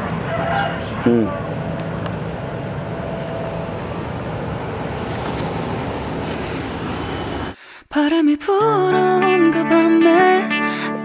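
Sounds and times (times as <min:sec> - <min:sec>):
motorbike engine humming: 0:00.0 - 0:07.6.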